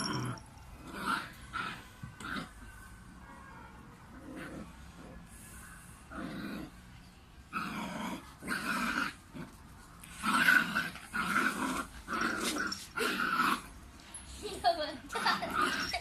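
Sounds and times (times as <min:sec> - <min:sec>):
puppy growling: 0:00.0 - 0:02.6, 0:07.5 - 0:13.7, 0:15.2 - 0:16.0.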